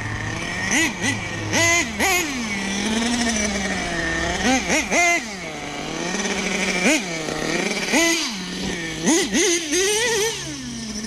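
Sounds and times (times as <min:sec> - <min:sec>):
engine throttle blips: 0:00.0 - 0:11.0
small nitro engine idling: 0:00.0 - 0:11.0.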